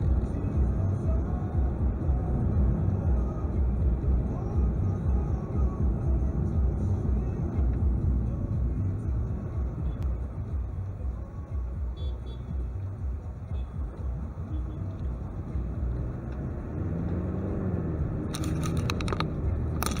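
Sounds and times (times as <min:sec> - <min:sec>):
car engine and road noise: 0:00.0 - 0:20.0
sharp clicks: 0:18.3 - 0:20.0.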